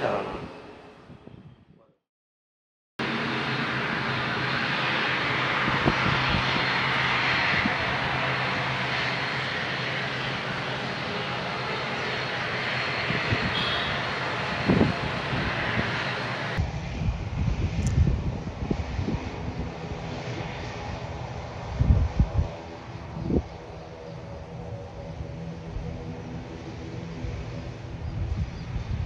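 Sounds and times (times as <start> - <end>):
jet engines rushing: 3.0 - 29.0.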